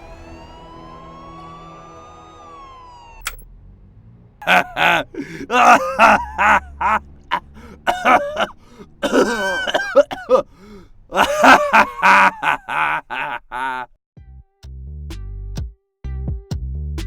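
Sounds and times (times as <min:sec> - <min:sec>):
person grunting and groaning: 0:04.4 - 0:13.9.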